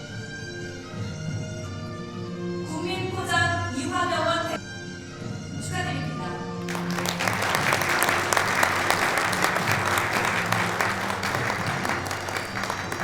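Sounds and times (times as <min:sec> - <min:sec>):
instrumental background music: 0:00.0 - 0:13.0
audience applauding: 0:06.7 - 0:13.0.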